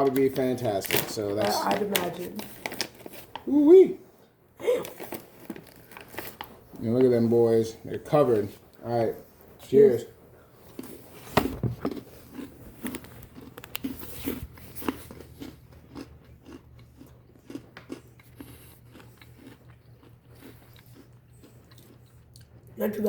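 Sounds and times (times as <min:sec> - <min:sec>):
crunchy chewing: 0:10.6 - 0:22.8.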